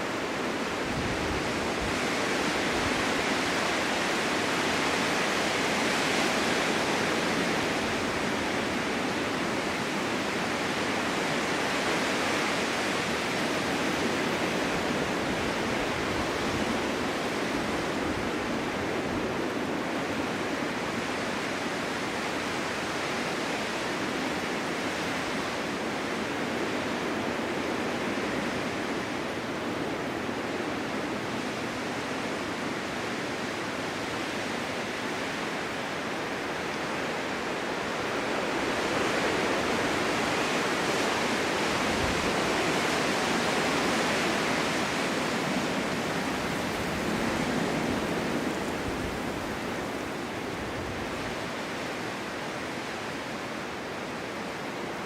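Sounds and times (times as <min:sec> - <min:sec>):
wind blowing: 0:35.8 - 0:55.0.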